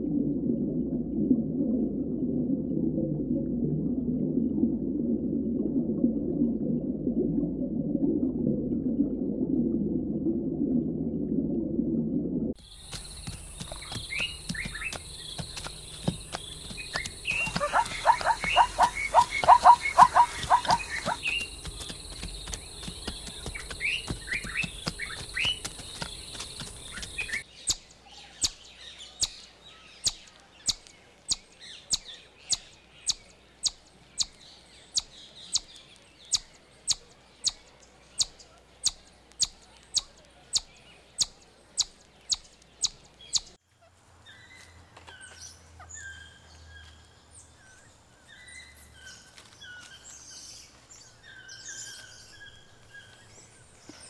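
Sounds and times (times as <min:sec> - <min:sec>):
high insect-like hiss: 0:12.6 - 0:27.4
squirrel chirps: 0:12.6 - 0:28.6.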